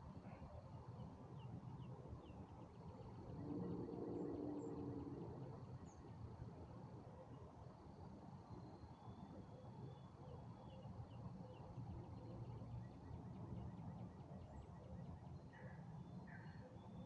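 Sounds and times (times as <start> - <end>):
distant songbirds chirping: 3.1 - 6.1.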